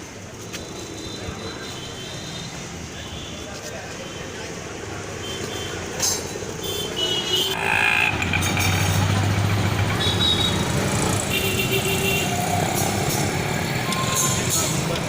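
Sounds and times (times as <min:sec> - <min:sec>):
vehicle engine running: 0:07.6 - 0:11.4.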